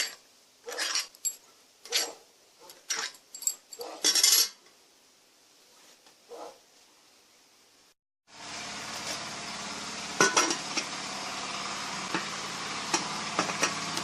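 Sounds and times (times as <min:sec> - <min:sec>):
metal parts scraping and clinking: 0:00.0 - 0:04.6.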